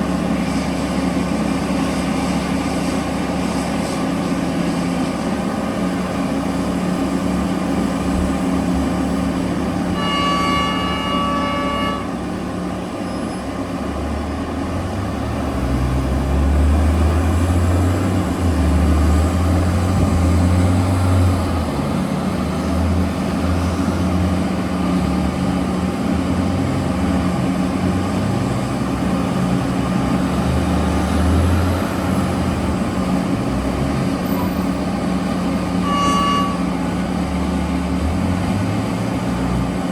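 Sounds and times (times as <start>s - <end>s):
heavy diesel machinery running: 0.0s - 39.9s
horn blast: 9.9s - 12.2s, 35.8s - 36.8s.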